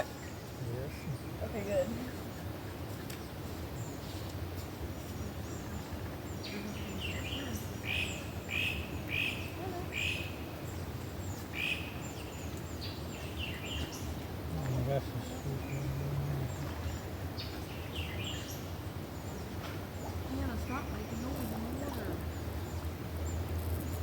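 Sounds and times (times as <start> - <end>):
low background rush: 0.0 - 24.0
bird chirping: 5.0 - 14.2, 15.1 - 24.0.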